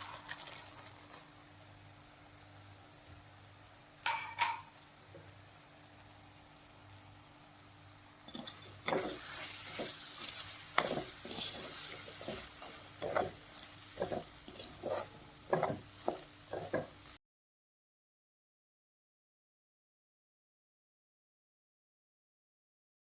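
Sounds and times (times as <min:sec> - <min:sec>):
food sizzling in a pan: 0:00.0 - 0:17.2
utensil scraping and knocking pan: 0:08.3 - 0:17.0.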